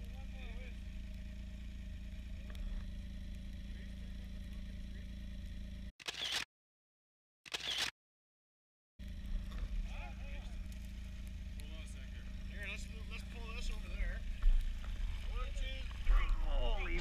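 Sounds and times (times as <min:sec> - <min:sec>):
snowmobile engine idling: 0:00.0 - 0:05.9, 0:09.0 - 0:17.0
camera shutter clicks: 0:06.0 - 0:06.5, 0:07.5 - 0:07.9.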